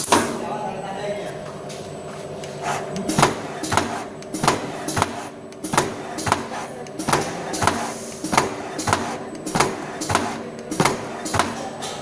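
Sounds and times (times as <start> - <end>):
machine hum: 0.0 - 12.0
printing machine clacking: 2.4 - 12.0.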